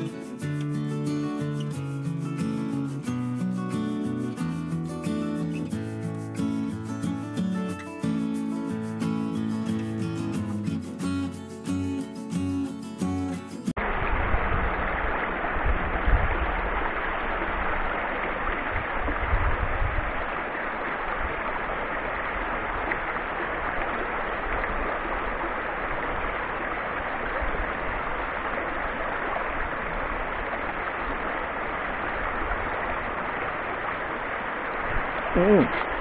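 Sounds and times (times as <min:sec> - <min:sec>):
creek rushing over rocks: 0:13.7 - 0:36.0.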